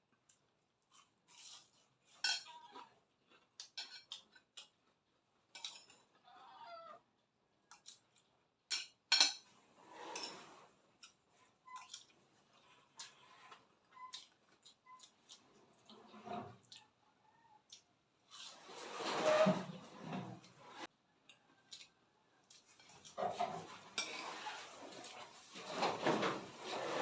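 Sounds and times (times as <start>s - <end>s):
utensils clinking on a plate: 1.4s - 2.7s, 3.6s - 4.8s, 5.5s - 6.1s, 8.7s - 12.2s, 22.5s - 27.0s.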